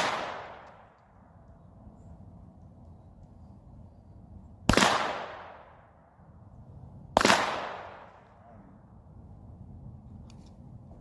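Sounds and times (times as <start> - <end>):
pistol shots with echo: 0.0 - 0.9, 4.7 - 5.8, 7.2 - 8.2.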